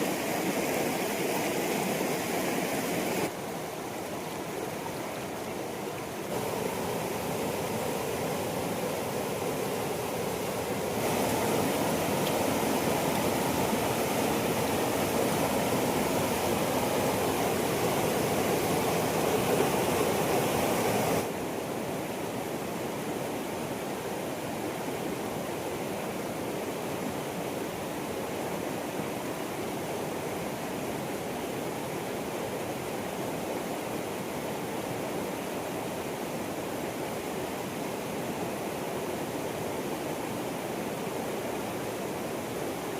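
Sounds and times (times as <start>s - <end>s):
steady rushing noise: 6.2s - 21.4s.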